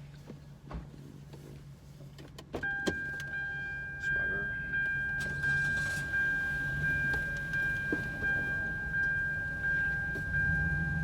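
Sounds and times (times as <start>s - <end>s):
car idling hum: 0.0s - 11.0s
car warning chime dinging: 2.6s - 11.0s.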